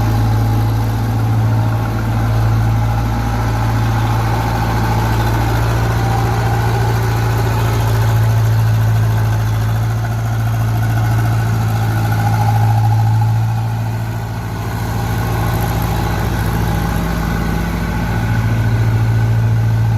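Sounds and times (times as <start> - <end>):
tractor diesel engine running: 0.0 - 19.9.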